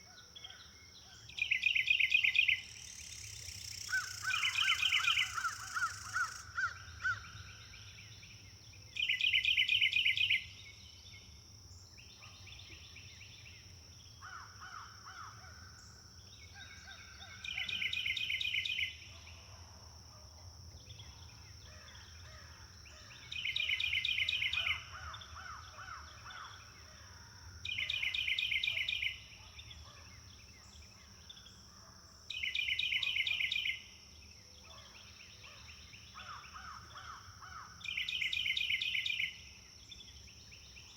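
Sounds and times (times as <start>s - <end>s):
quieter bird calls: 0.0s - 19.4s, 20.8s - 31.7s.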